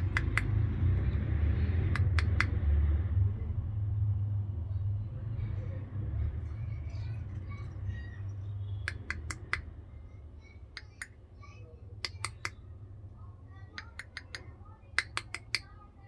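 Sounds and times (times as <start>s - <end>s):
sharp dry clicks: 0.0s - 0.6s, 1.9s - 2.6s, 8.8s - 9.7s, 10.7s - 11.2s, 12.0s - 12.6s, 13.8s - 15.7s.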